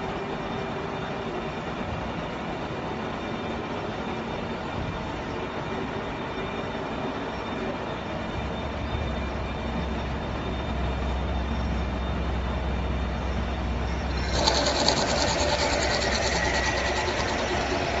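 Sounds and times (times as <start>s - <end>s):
milling machine humming: 13.9s - 18.0s
rapid rattling machining noise: 13.9s - 18.0s.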